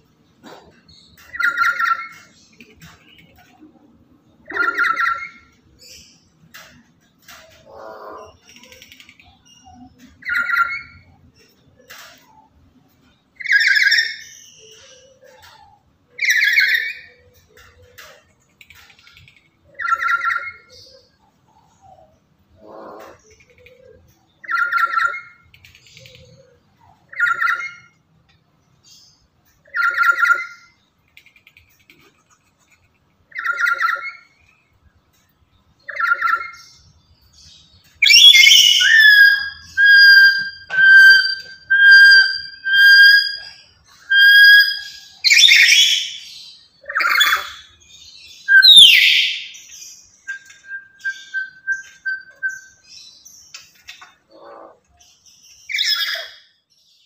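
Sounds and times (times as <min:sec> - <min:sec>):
parrot calling: 0:04.4 - 0:05.6, 0:07.6 - 0:11.1, 0:22.5 - 0:25.5, 0:38.0 - 0:47.8, 0:48.4 - 0:49.7, 0:50.3 - 0:52.8, 0:54.1 - 0:54.9
whistled notes: 0:38.0 - 0:45.8.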